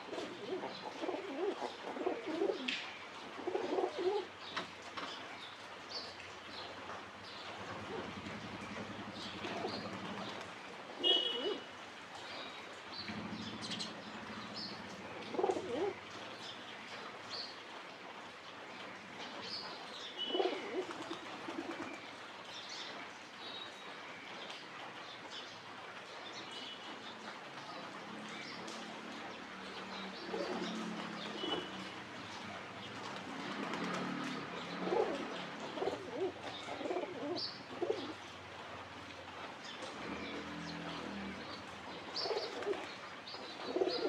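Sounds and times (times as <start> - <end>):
pigeons cooing: 0.0 - 2.7, 3.4 - 4.3, 7.8 - 10.4, 15.3 - 16.0, 20.3 - 21.9, 30.2 - 31.7, 33.7 - 38.2, 42.1 - 43.0, 43.6 - 44.0.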